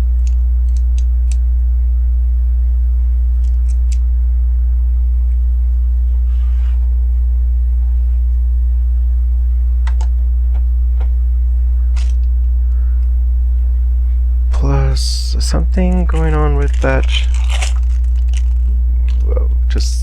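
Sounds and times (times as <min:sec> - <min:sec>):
low hum: 0:00.0 - 0:20.0
plastic pieces clicking: 0:12.0 - 0:12.3, 0:16.1 - 0:19.3.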